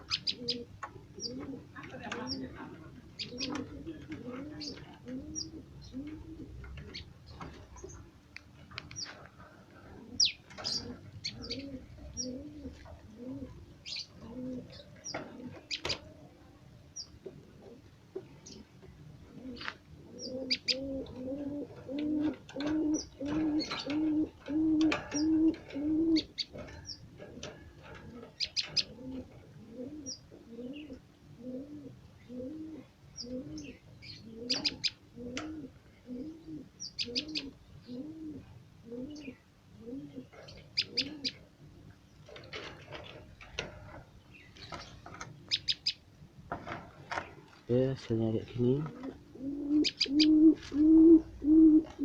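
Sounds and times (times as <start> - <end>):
dove cooing: 0.0 - 8.2, 9.0 - 46.0, 48.1 - 52.0
small bird chirps: 44.4 - 46.0.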